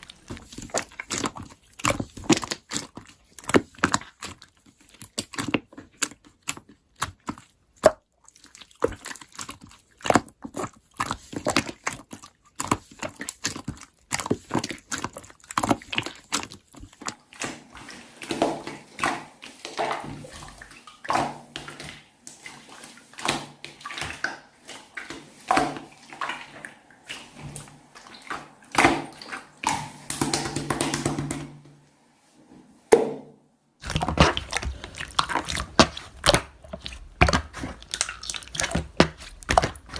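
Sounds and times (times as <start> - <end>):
slime squeezed by hand: 33.8 - 39.9.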